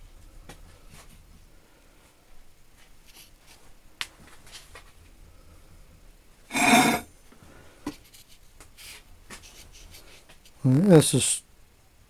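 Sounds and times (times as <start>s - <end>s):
steel block scraping on trolley: 6.5s - 7.1s.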